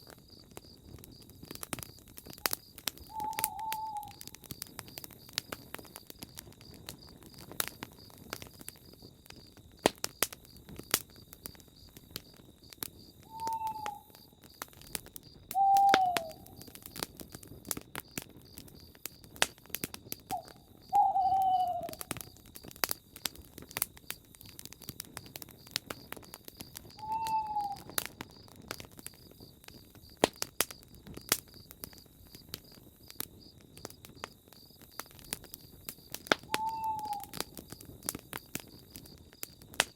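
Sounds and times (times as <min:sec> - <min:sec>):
campfire crackling and popping: 0:00.0 - 0:39.9
bird calling: 0:03.0 - 0:04.3, 0:13.3 - 0:14.2, 0:15.6 - 0:16.7, 0:20.3 - 0:22.1, 0:27.0 - 0:28.0, 0:36.5 - 0:37.4.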